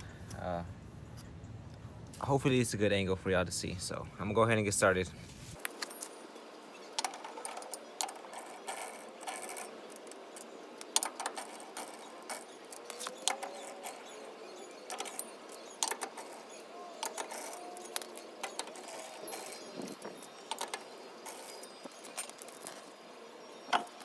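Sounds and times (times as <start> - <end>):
short high squeaks: 6.8 - 24.0.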